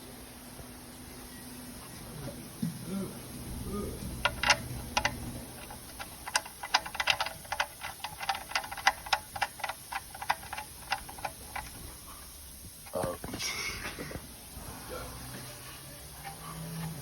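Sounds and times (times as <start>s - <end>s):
light irregular clicks: 4.2s - 11.9s.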